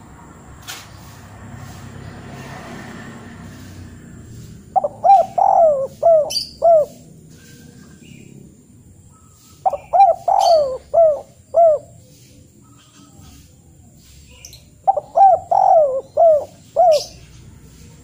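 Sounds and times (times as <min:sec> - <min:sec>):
bird calling: 0:04.4 - 0:08.4, 0:09.0 - 0:18.0.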